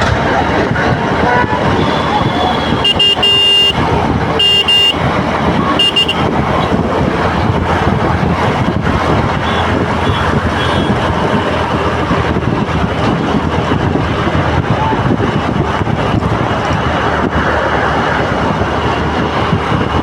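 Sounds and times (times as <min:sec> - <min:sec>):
traffic engines and road noise: 0:00.0 - 0:20.0
vehicle horn honking: 0:01.3 - 0:05.1, 0:05.8 - 0:06.5, 0:09.4 - 0:11.1.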